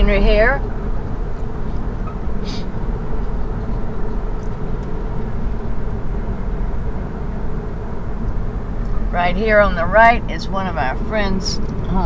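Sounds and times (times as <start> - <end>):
road and tyre noise: 0.0 - 12.0
brief hiss: 2.4 - 2.7.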